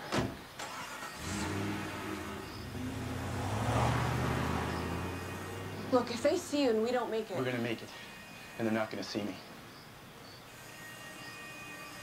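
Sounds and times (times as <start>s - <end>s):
car engine accelerating away: 0.6s - 6.6s.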